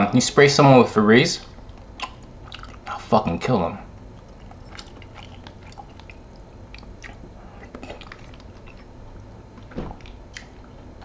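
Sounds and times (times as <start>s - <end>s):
chewing mouth noises: 1.4s - 3.1s, 4.0s - 9.0s, 10.0s - 11.0s.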